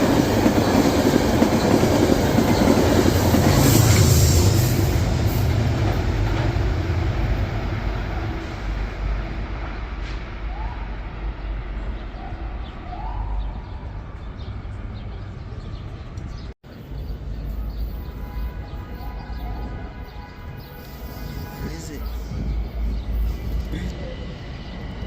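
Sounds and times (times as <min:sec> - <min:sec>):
train rumbling: 0:00.0 - 0:18.0, 0:18.6 - 0:25.0.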